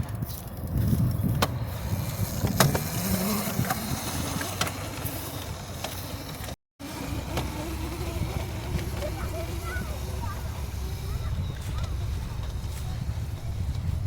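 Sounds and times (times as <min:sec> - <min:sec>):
electric motor whine: 0:01.8 - 0:14.0
low rumble: 0:07.0 - 0:14.0.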